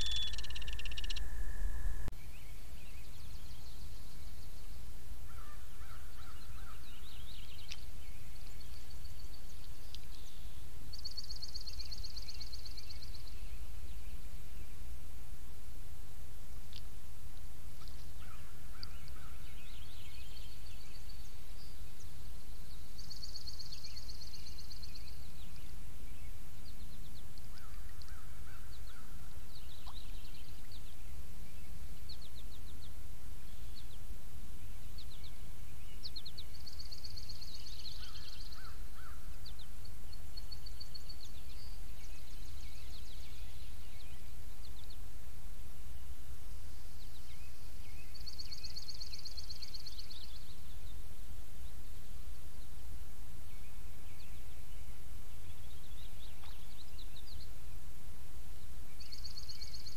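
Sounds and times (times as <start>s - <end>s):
birds chirping: 0.0s - 14.8s
buzzy trilled birdsong: 0.0s - 14.8s.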